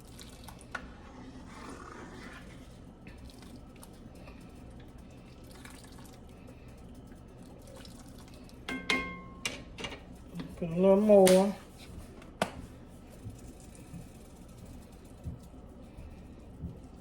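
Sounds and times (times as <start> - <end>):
sauce simmering in a pan: 0.0 - 8.7.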